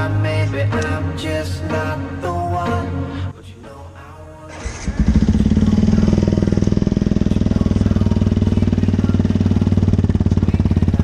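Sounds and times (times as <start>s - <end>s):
motorcycle exhaust running steadily: 5.0s - 11.0s.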